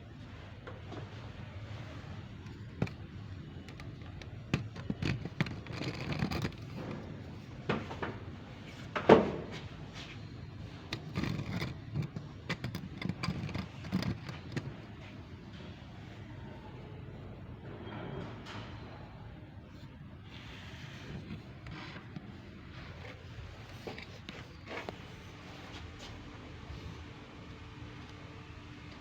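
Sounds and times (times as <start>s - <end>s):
hard objects knocking and clattering: 1.8s - 9.8s, 10.6s - 15.1s, 21.0s - 25.1s.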